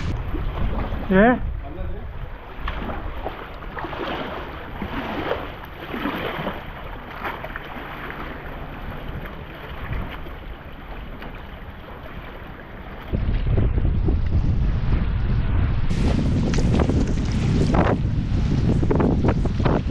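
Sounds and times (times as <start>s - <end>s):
wind buffeting microphone: 0.0s - 7.2s, 8.2s - 19.9s
water splashing around kayak: 0.0s - 19.9s.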